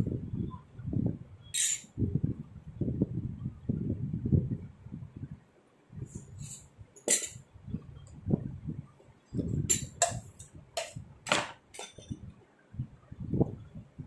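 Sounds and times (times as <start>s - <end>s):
utensil clinking against dishware: 7.0s - 7.4s, 9.7s - 12.2s.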